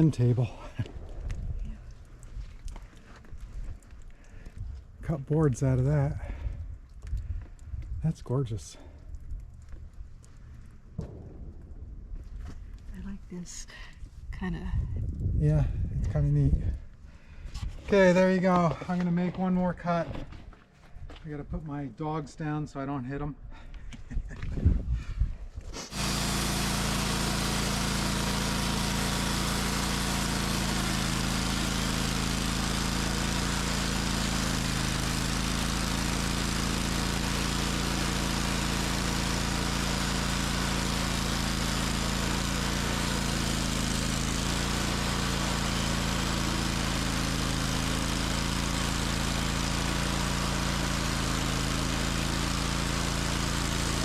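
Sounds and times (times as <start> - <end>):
sawmill engine running: 0.0 - 4.5, 25.8 - 54.0.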